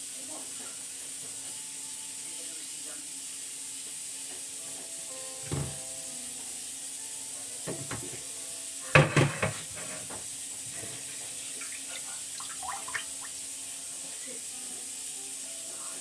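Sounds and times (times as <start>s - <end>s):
steady hiss: 0.0s - 16.0s
knocks and clatters: 7.7s - 8.2s, 9.0s - 10.2s.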